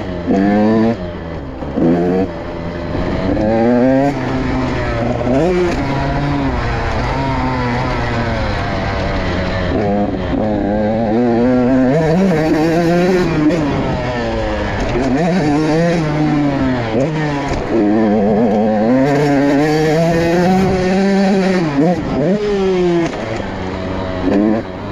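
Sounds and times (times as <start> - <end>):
motorcycle engine revving: 0.0 - 24.9.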